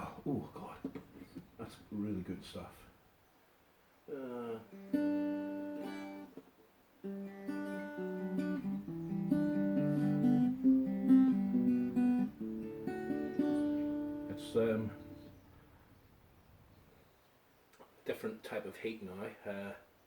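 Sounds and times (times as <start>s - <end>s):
guitar music: 4.6s - 6.4s, 7.0s - 15.4s.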